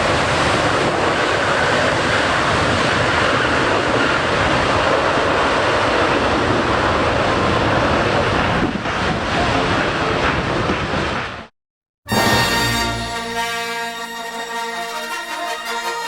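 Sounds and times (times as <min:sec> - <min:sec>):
jet engines roaring: 0:00.0 - 0:11.4.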